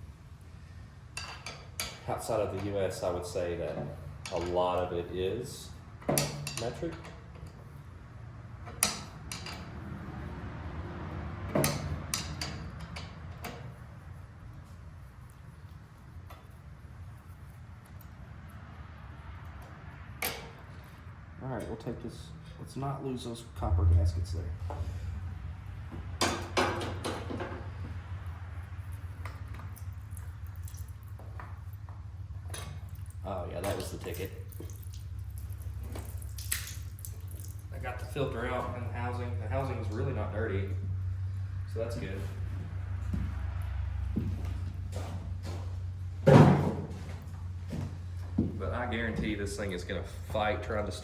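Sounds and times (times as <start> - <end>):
steady low hum: 21.8 - 51.0.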